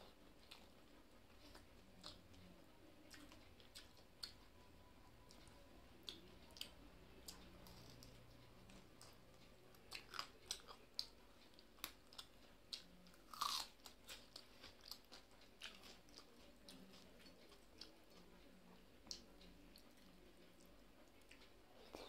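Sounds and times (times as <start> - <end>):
person chewing and crunching food: 0.0 - 4.6, 5.2 - 18.4, 19.0 - 22.0.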